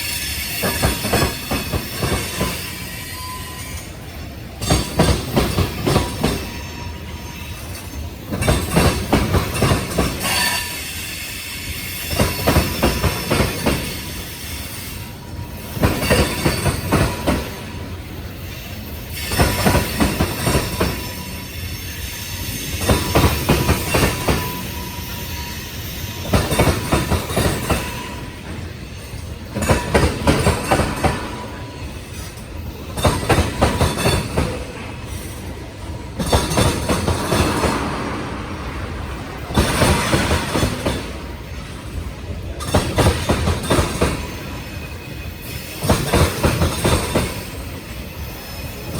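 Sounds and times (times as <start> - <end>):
faint wheel squeal: 0.0 - 4.9, 18.3 - 29.2
freight train rumble: 0.0 - 48.9
train wheels clacking over rail joints: 0.0 - 48.9.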